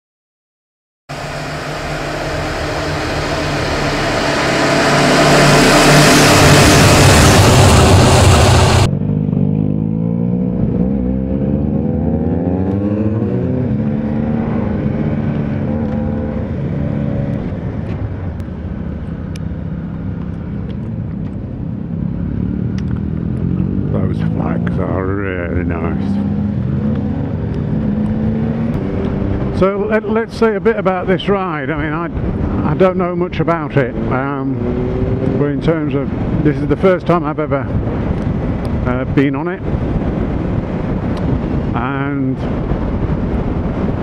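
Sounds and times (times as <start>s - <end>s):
motorcycle engine: 1.1s - 30.3s, 33.8s - 36.4s
wind rush on microphone: 1.2s - 9.4s, 10.4s - 44.0s.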